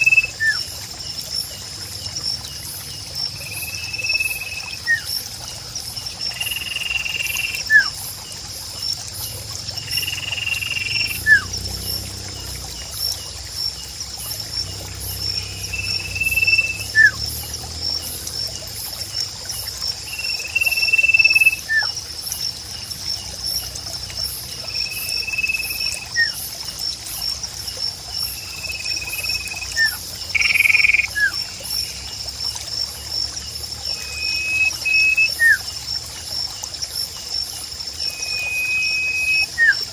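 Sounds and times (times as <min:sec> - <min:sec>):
frogs and insects chorus: 0:00.0 - 0:39.9
trickling water: 0:00.0 - 0:39.9
bird whistling and chirping: 0:15.6 - 0:17.2, 0:34.0 - 0:35.6, 0:38.1 - 0:39.8.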